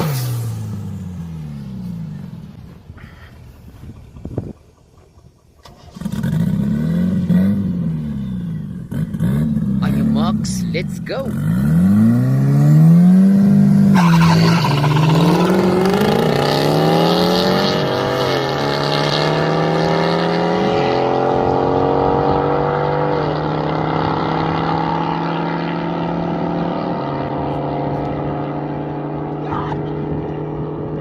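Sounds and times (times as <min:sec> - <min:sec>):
engine accelerating through gears: 0:05.6 - 0:10.5, 0:11.2 - 0:31.0.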